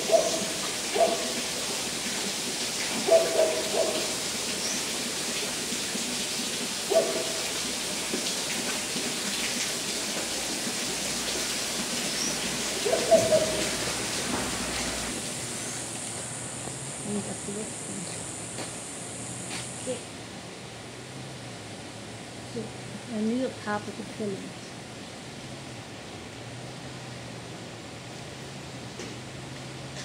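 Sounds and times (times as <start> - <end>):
bird hooting: 0.0 - 1.3, 12.2 - 13.8.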